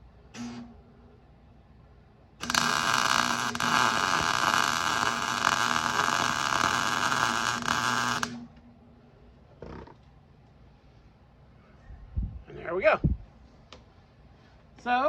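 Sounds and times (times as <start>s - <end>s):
welding arc crackling sizzle: 2.4s - 8.5s.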